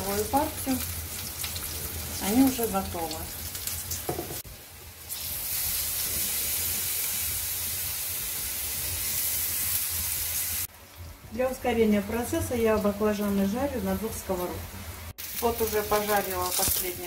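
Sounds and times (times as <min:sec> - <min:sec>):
eggplant sizzling in oil: 0:00.0 - 0:10.7, 0:11.3 - 0:17.0.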